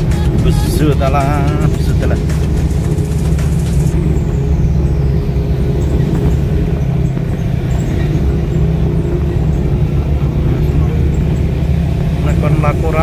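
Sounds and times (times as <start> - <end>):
car engine drone: 0.0 - 13.0.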